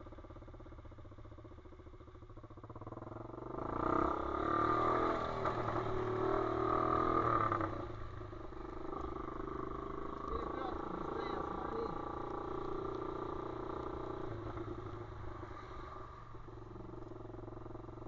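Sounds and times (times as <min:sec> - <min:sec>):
motorbike engine revving: 0:02.8 - 0:18.0.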